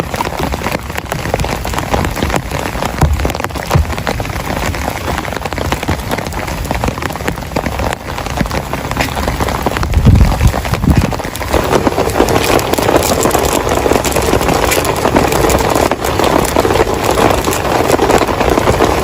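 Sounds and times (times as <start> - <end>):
heavy rain falling: 0.0 - 19.0
low thump: 3.0 - 4.2.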